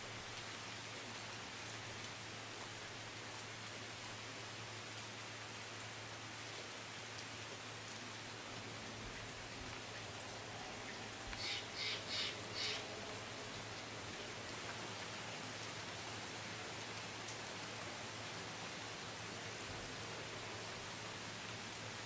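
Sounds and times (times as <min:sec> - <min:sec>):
rain falling on water and trees: 0:00.0 - 0:22.0
harsh bird calls: 0:11.4 - 0:12.8.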